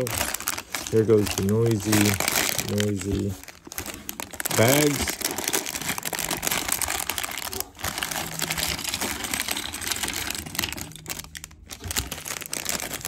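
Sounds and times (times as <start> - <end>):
plastic bags crinkling: 0.0 - 13.0
plastic bricks clicking and rattling: 4.4 - 13.0.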